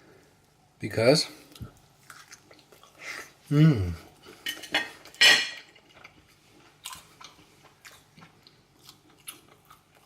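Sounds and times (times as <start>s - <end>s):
person chewing: 1.5s - 4.4s, 5.8s - 10.0s.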